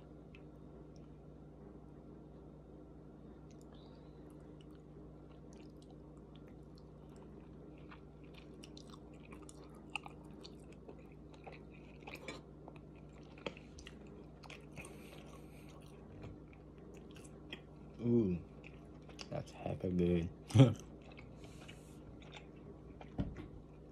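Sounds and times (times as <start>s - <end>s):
steady low hum: 0.0s - 23.9s
person chewing food: 3.4s - 19.5s, 20.4s - 23.9s.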